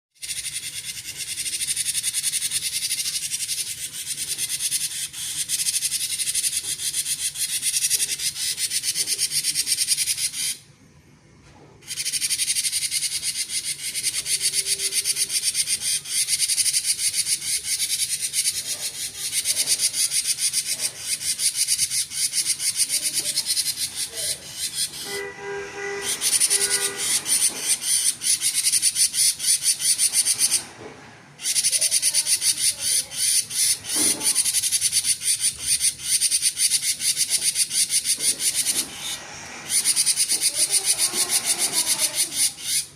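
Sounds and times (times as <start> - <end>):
bird singing buzzing chatter: 0.2 - 10.7, 11.8 - 42.9.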